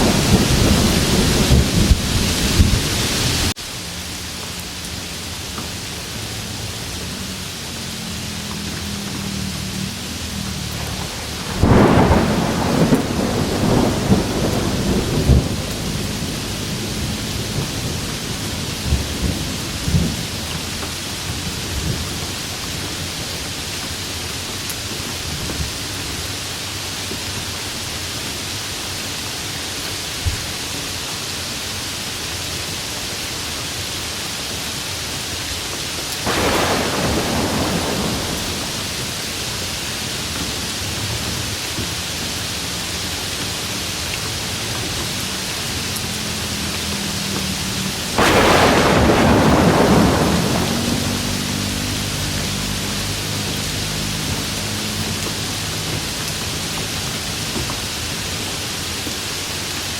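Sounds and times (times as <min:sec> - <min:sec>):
thunder clap rumbling: 0:00.0 - 0:03.5, 0:08.9 - 0:22.8, 0:36.2 - 0:40.6, 0:46.9 - 0:53.7
thunder cracks: 0:00.0 - 0:03.5, 0:10.0 - 0:22.3, 0:36.2 - 0:39.7, 0:47.9 - 0:52.7
steady rain: 0:00.0 - 0:59.9.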